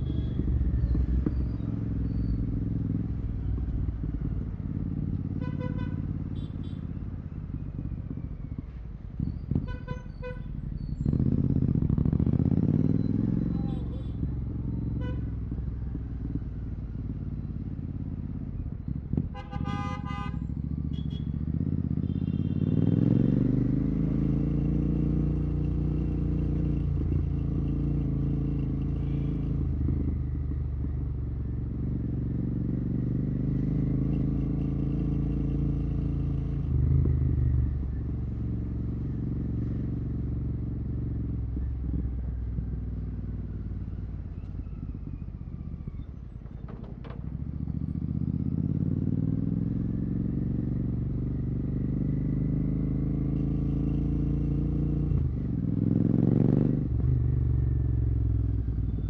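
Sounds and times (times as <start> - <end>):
motorcycle engine running: 0.0 - 8.5, 9.1 - 59.0
vehicle horn honking: 5.4 - 6.8, 19.4 - 20.4, 22.0 - 23.0.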